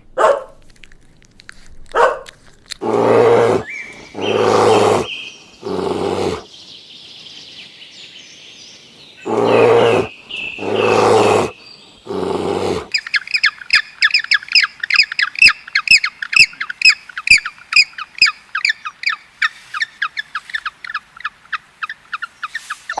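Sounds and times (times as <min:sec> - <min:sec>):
rough animal calls: 0:01.6 - 0:06.5, 0:09.2 - 0:16.8
bird chirping rapidly: 0:02.8 - 0:06.4, 0:09.2 - 0:19.2.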